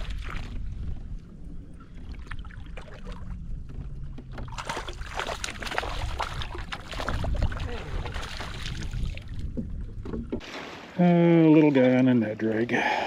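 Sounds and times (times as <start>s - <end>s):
water splashing at kayak: 0.0s - 0.8s, 4.3s - 12.0s
wind rumble on microphone: 0.0s - 10.4s.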